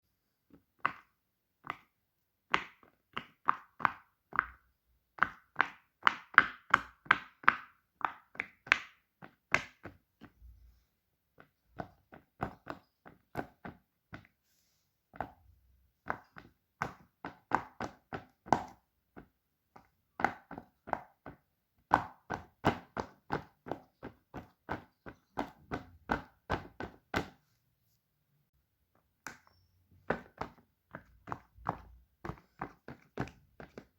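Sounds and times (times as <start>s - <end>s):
fidget toy taps and clicks: 29.2s - 33.9s.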